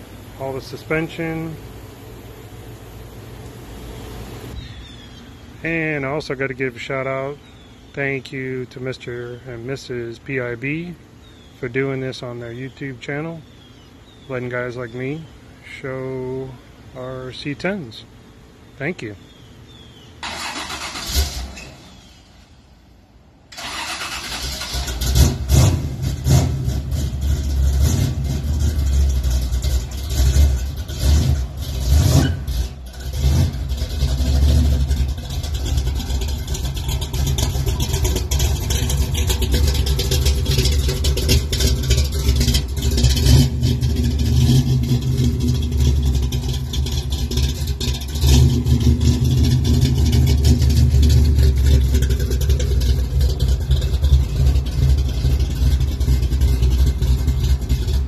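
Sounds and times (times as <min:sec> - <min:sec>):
car engine running: 0:00.0 - 0:06.8, 0:23.6 - 0:58.0.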